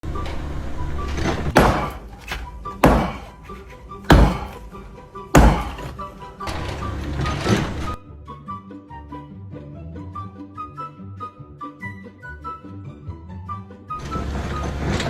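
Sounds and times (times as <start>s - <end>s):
music with heavy thuds: 1.5s - 6.6s.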